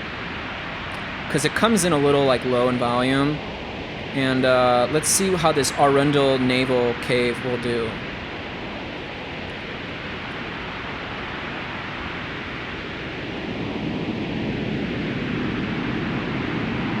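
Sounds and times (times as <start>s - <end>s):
reverberant white noise hiss: 0.0s - 17.0s.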